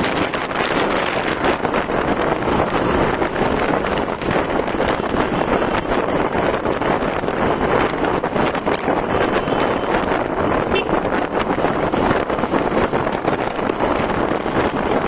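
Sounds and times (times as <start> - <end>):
motorcycle engine: 0.0 - 15.0
road noise: 0.0 - 15.0
wind rushing over microphone: 0.0 - 15.0.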